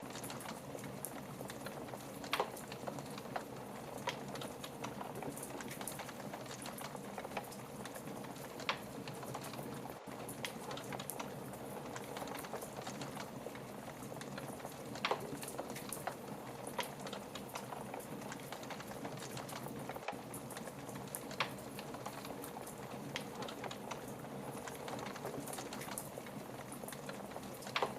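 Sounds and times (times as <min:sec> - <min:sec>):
fire crackling in a fireplace: 0:00.0 - 0:27.9.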